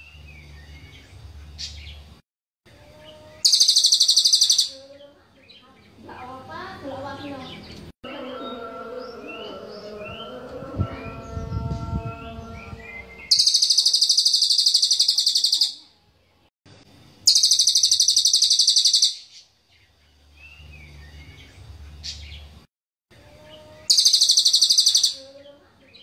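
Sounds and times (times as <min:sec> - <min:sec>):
bird singing rapid high trill: 0:02.7 - 0:05.7, 0:07.2 - 0:15.9, 0:17.2 - 0:19.4, 0:23.2 - 0:26.0
faint bird chirps: 0:03.0 - 0:05.8, 0:12.6 - 0:15.9, 0:17.3 - 0:22.2, 0:23.2 - 0:26.0.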